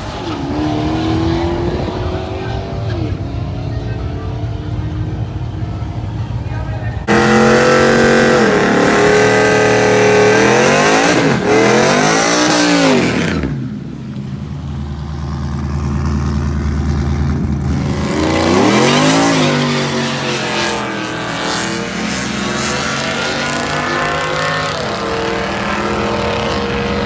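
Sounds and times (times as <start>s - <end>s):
low engine drone: 0.0s - 18.6s
truck engines revving hard: 0.0s - 27.0s.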